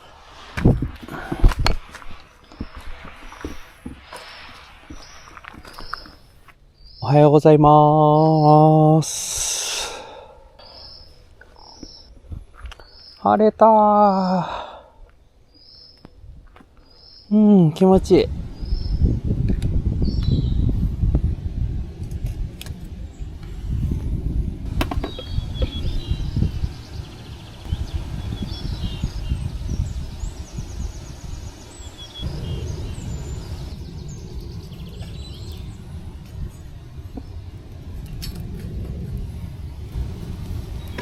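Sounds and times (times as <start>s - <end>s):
small birds chirping and trilling: 2.3s - 9.1s, 9.8s - 20.9s, 23.0s - 41.0s
low rumble: 18.0s - 41.0s.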